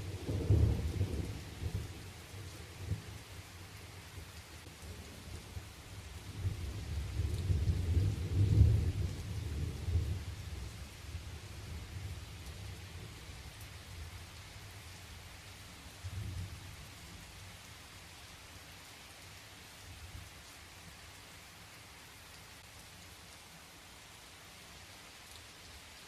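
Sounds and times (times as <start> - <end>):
rain falling: 0.0 - 26.0
low thunder rumbling: 6.4 - 11.3.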